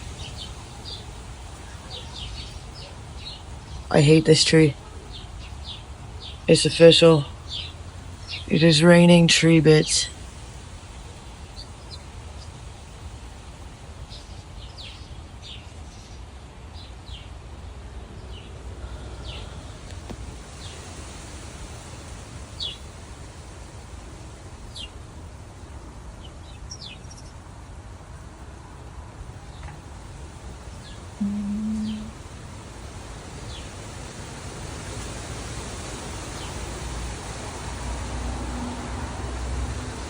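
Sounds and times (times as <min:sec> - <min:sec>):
small birds chirping: 0:00.0 - 0:23.0, 0:26.2 - 0:27.5, 0:30.6 - 0:32.2.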